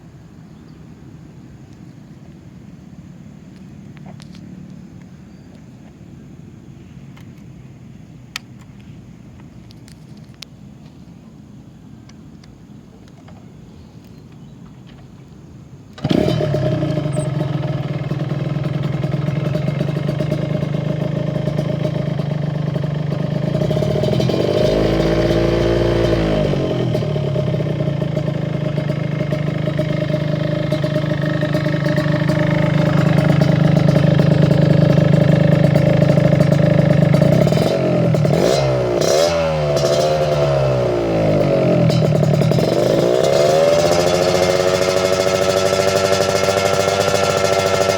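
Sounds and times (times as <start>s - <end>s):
motorcycle engine idling and revving: 15.9s - 47.9s.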